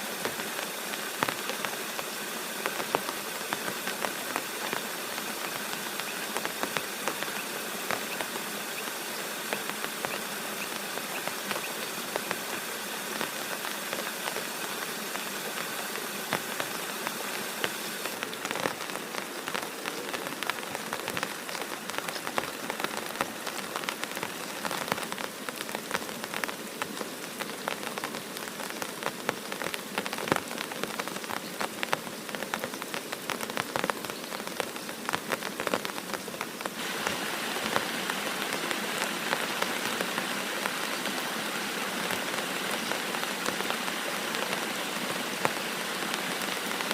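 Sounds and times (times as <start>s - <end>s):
raindrops ticking on surface: 0.0s - 46.9s
steady rain falling: 0.0s - 46.9s.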